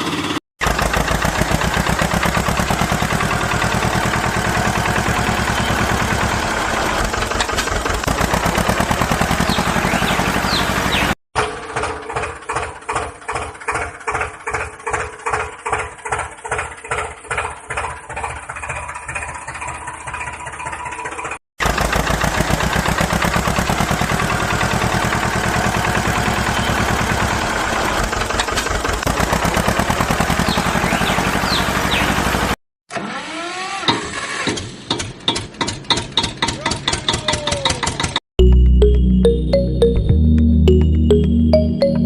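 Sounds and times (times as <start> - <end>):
engine chugging: 0.0 - 32.6
louder engine running steadily: 0.0 - 32.6.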